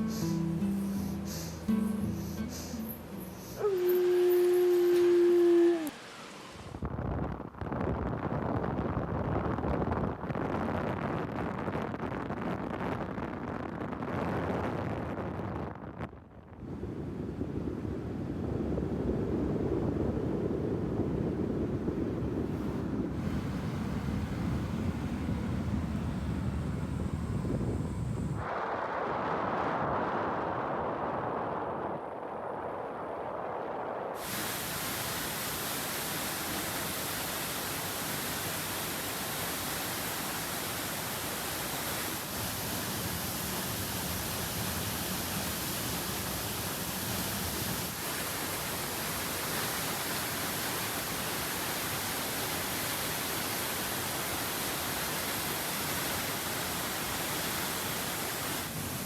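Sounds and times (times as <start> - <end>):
wind buffeting: 0.0 - 34.8
rushing river water: 34.2 - 59.0.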